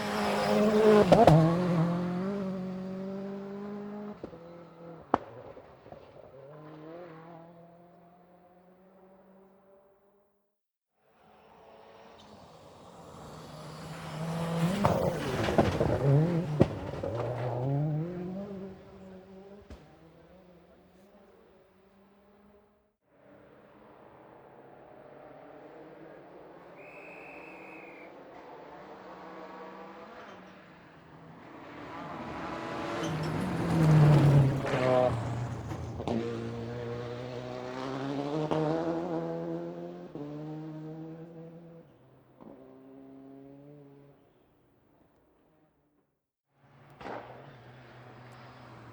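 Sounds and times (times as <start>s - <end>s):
racing car engine revving: 0.0s - 5.6s, 11.6s - 22.4s, 28.2s - 44.1s
engine accelerating: 12.1s - 20.5s.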